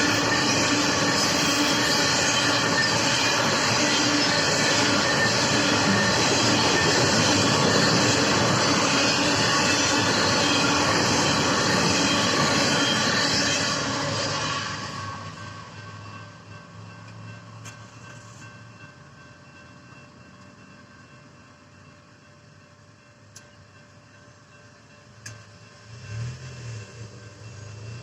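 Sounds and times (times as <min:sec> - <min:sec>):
high wheel squeal: 0:00.0 - 0:16.0
train wheels rumbling on rails: 0:00.0 - 0:28.0.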